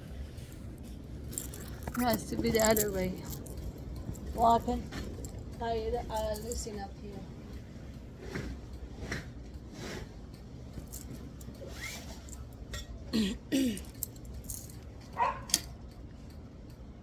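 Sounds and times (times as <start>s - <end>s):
curtain hardware scraping and clinking: 1.2s - 5.5s, 8.1s - 12.7s.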